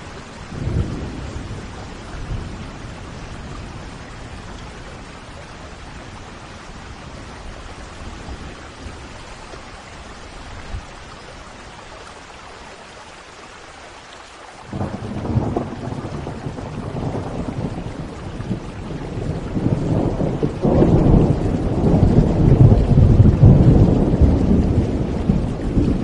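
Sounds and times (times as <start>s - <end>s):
low rumbling thunder: 0.0s - 9.3s, 14.7s - 26.0s
steady rain: 0.0s - 26.0s
loud thunderclap: 0.5s - 2.9s, 14.7s - 26.0s.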